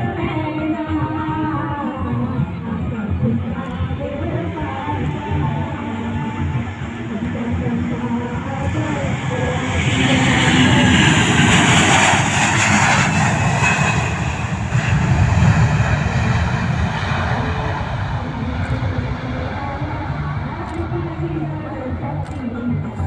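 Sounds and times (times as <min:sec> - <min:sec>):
airliner engines roaring: 0:00.0 - 0:23.0
steady low rumble: 0:00.0 - 0:23.0.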